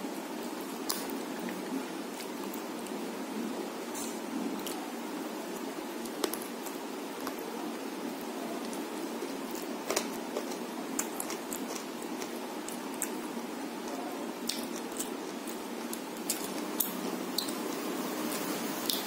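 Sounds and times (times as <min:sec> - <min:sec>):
steady hiss: 0:11.8 - 0:19.0.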